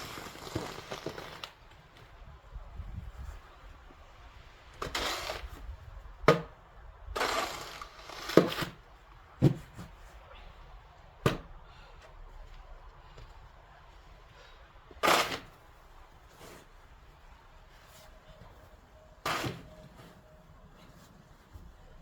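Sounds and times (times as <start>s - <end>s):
snow shovel scraping snow: 0.0s - 1.5s, 4.8s - 5.6s, 7.2s - 8.8s, 15.0s - 15.6s, 19.2s - 20.2s.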